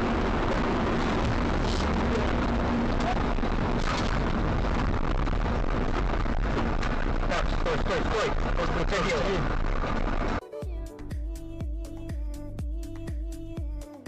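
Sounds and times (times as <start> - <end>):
vehicle road and engine rumble: 0.0 - 10.4.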